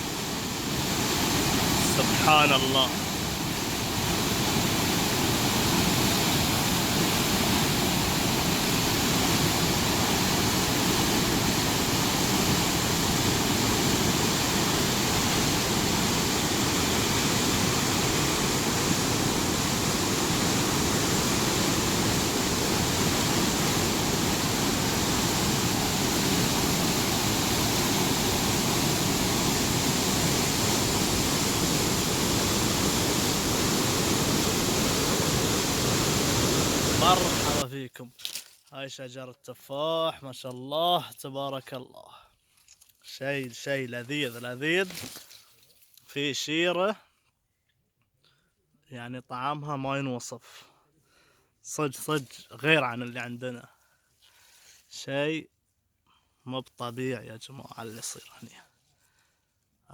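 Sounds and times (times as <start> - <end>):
waterfall rushing: 0.0 - 37.6.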